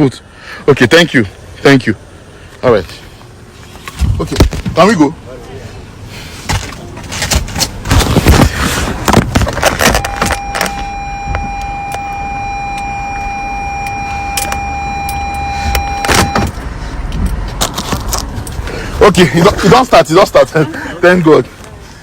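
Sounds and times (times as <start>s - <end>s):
car electronic warning buzz: 9.6s - 16.9s.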